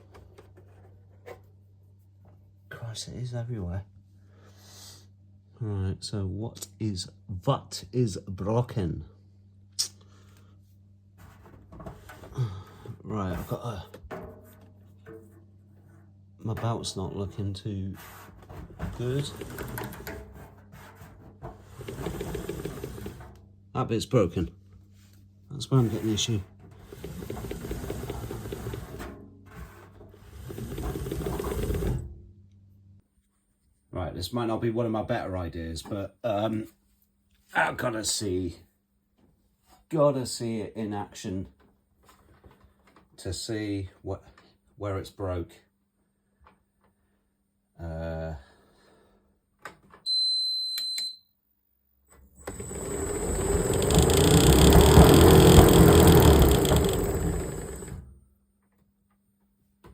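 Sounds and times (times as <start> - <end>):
tumble dryer drum rattling: 21.7 - 23.3, 26.8 - 29.2, 30.3 - 32.1, 52.4 - 58.0.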